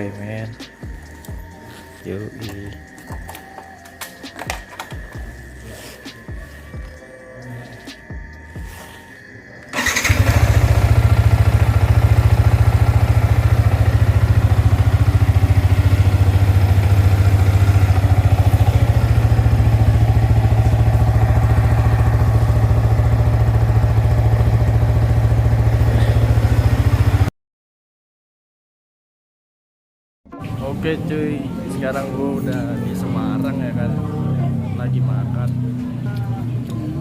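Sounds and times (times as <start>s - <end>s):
motorcycle engine running: 9.7s - 27.3s.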